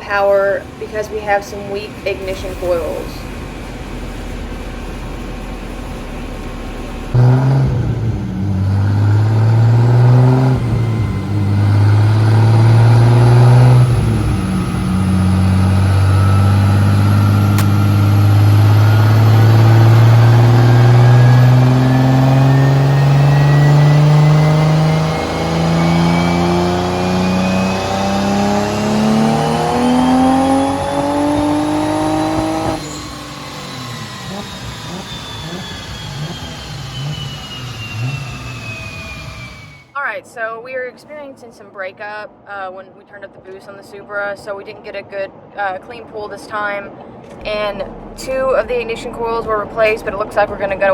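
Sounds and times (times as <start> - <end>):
car engine revving: 0.0 - 40.0, 47.1 - 50.9.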